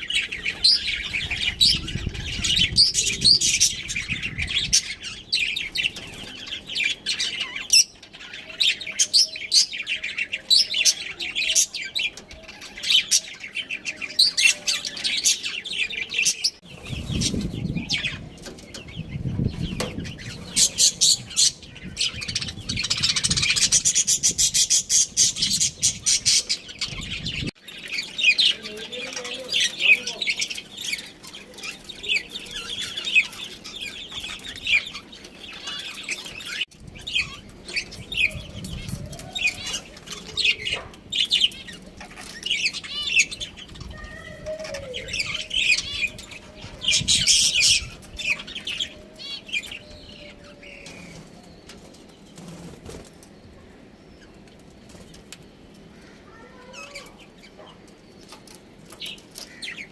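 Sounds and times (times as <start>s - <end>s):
budgerigars chirping and chattering: 0.0s - 59.9s
wings flapping: 50.8s - 53.3s.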